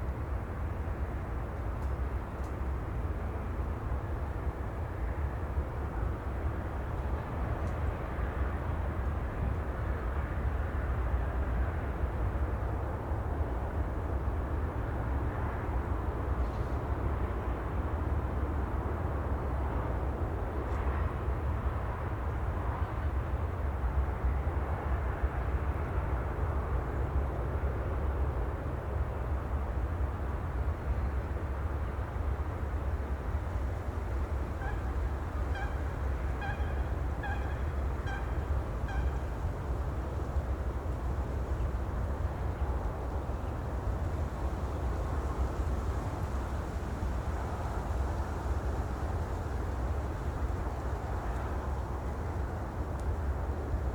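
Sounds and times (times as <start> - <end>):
low outdoor rumble: 0.0 - 53.9.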